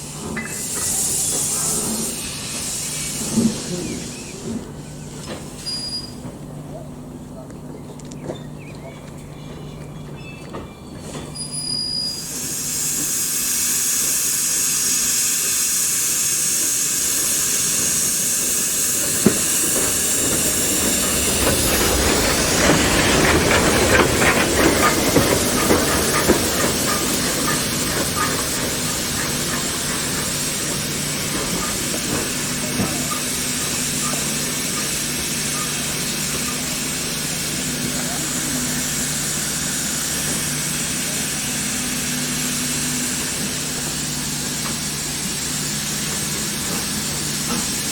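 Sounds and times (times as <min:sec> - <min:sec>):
steam locomotive hissing: 0:00.0 - 0:07.4, 0:11.1 - 0:47.9
rough noise with clanks: 0:16.7 - 0:47.9.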